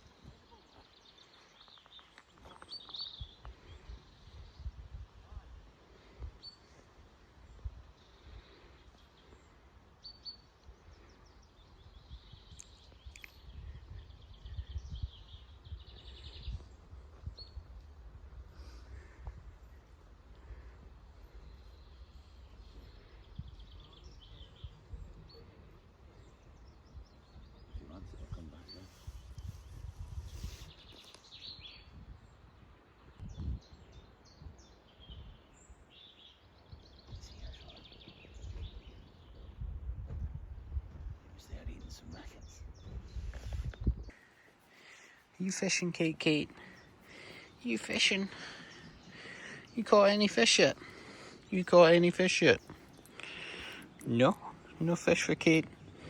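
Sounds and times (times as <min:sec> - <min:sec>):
small birds chirping: 0:00.0 - 0:56.0
songbirds singing: 0:00.0 - 0:56.0
wind gusting on microphone: 0:02.9 - 0:08.4, 0:11.7 - 0:35.9, 0:36.6 - 0:44.3.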